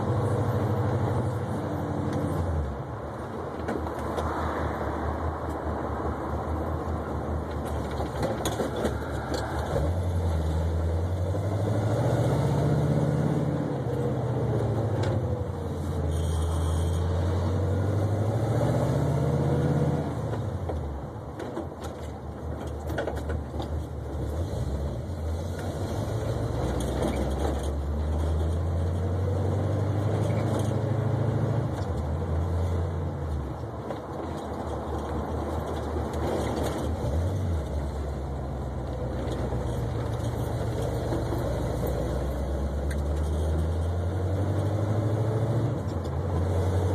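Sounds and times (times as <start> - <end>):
car engine revving: 8.8 - 20.4.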